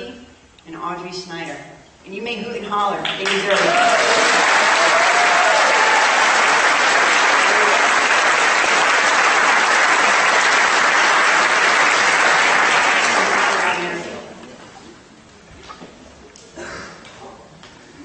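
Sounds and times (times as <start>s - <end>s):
audience applauding: 3.1s - 14.3s
person whooping: 3.7s - 6.4s.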